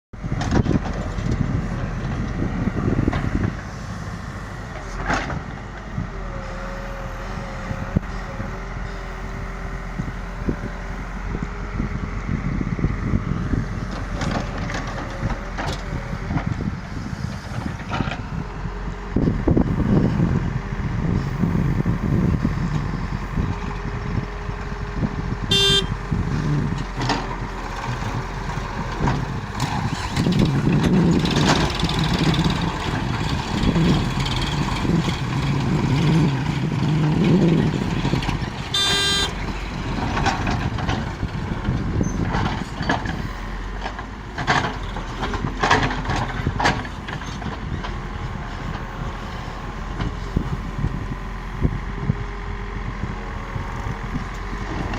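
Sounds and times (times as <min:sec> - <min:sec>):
diesel engines revving: 0:00.2 - 0:54.9
short horn toots: 0:25.5 - 0:26.0, 0:38.7 - 0:39.4.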